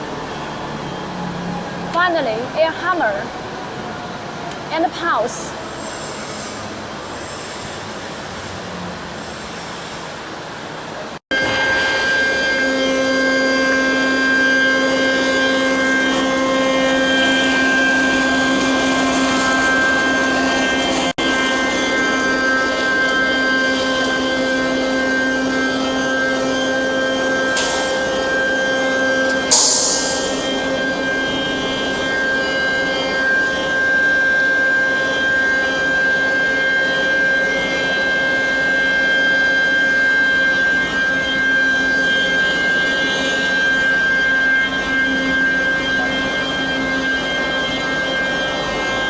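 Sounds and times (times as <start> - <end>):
hiss of air: 5.7 - 10.3, 29.5 - 31.1
crusher machinery humming: 10.9 - 49.0.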